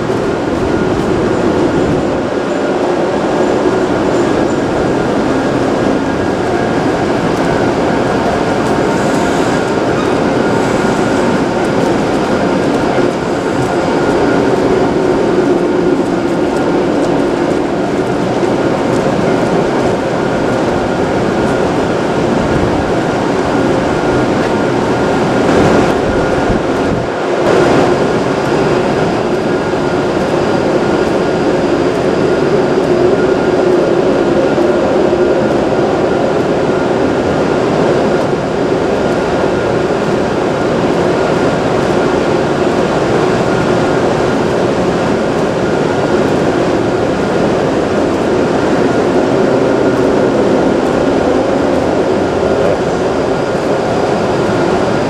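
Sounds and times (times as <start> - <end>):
train rumbling at platform: 0.0 - 55.0.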